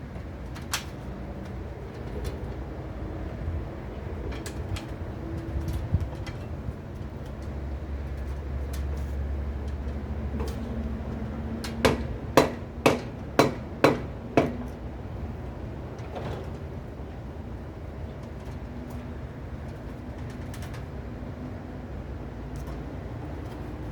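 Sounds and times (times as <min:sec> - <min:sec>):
sharp knocks on pipe: 0:11.9 - 0:14.7.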